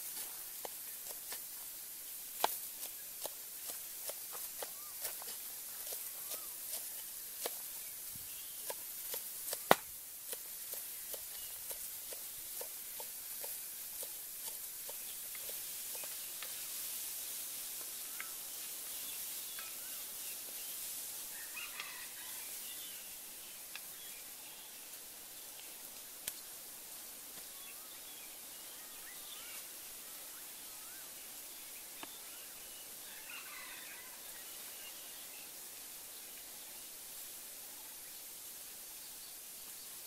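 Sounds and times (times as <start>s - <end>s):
steady high outdoor hiss: 0.0s - 40.0s
cleaver chopping on bamboo: 2.4s - 7.7s, 8.6s - 16.5s.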